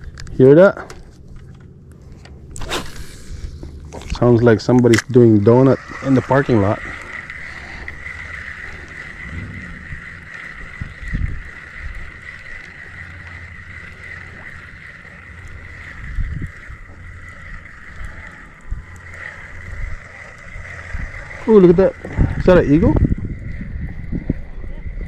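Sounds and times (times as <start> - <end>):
wind on microphone: 5.9 - 12.7, 15.5 - 25.0.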